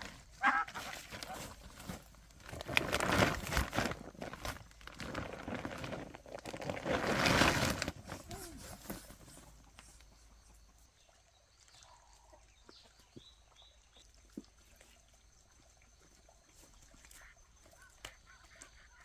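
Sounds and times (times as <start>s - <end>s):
faint poultry calls: 0.3s - 1.6s.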